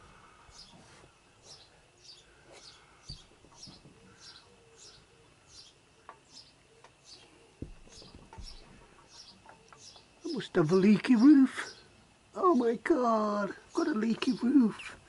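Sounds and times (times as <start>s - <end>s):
small bird chirping: 0.5s - 12.8s
soft knocks: 7.6s - 8.8s.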